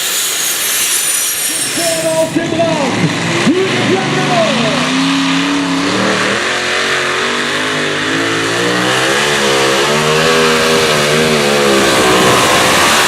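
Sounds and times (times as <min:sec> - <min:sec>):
rush of exhaust noise: 0:00.0 - 0:06.9
tractor engine running hard: 0:00.0 - 0:13.0.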